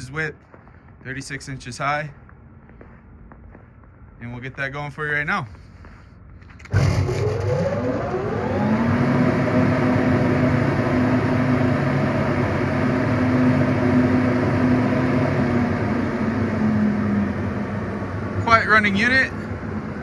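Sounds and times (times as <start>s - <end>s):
exhaust blower humming: 6.6s - 20.0s.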